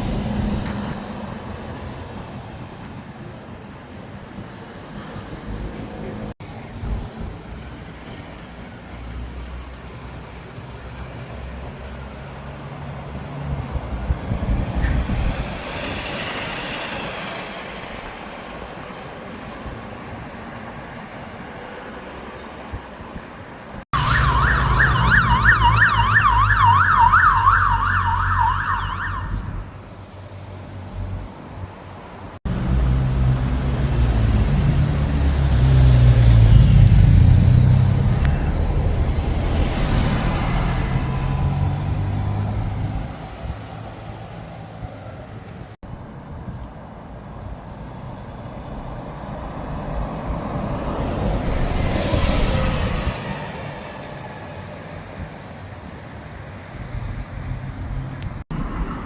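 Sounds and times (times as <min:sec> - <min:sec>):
warbling emergency siren: 0:24.0 - 0:29.8
vehicle engines rumbling: 0:24.0 - 0:59.0.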